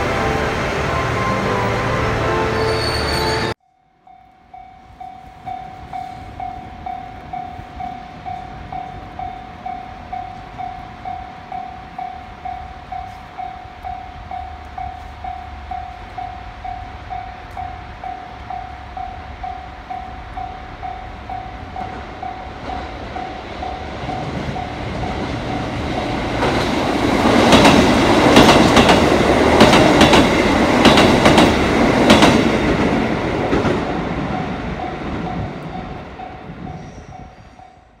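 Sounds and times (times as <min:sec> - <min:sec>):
diesel train passing: 0:00.0 - 0:38.0
wheels clacking over rail joints: 0:21.3 - 0:35.7.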